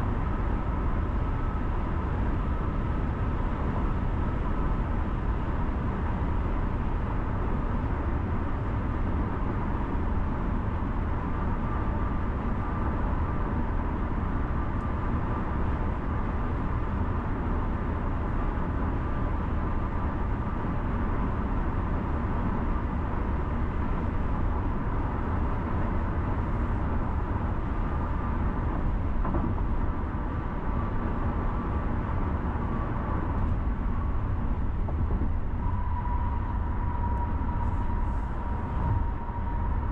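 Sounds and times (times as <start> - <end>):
faint steady whine: 0.0 - 39.9
tyre and engine rumble: 25.9 - 39.9.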